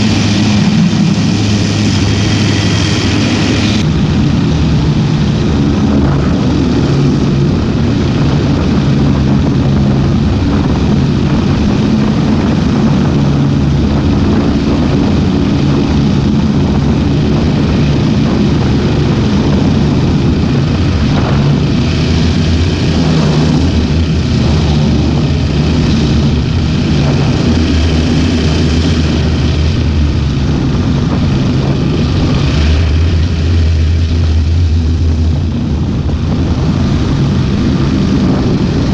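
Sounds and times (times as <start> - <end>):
ultralight aircraft engine and propeller: 0.0 - 38.9.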